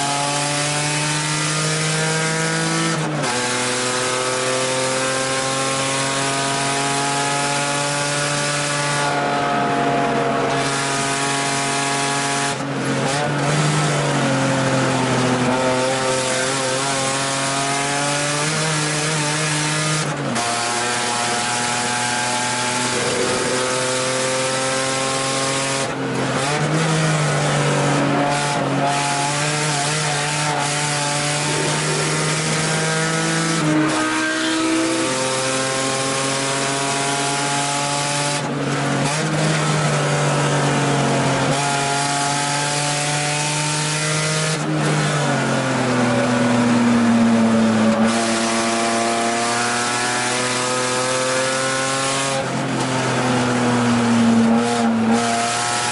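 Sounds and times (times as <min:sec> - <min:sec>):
race car engine at full throttle: 0:00.0 - 0:55.9.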